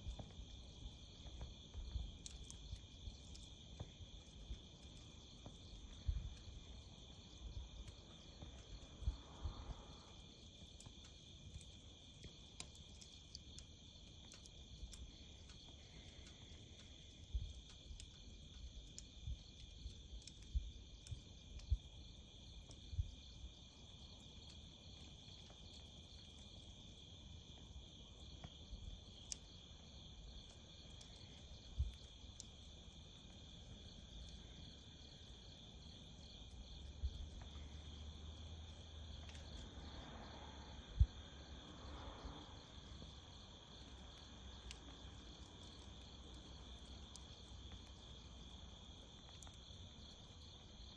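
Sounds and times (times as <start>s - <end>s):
campfire thumps and crackles: 0.0s - 9.2s, 9.9s - 37.8s
crickets chirping: 0.0s - 50.9s.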